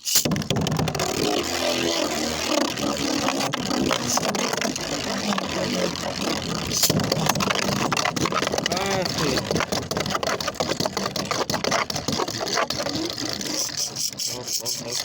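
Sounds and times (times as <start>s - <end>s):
rapid clicks of tops hitting: 0.0s - 15.0s
spinning tops whirring and grinding: 0.0s - 15.0s.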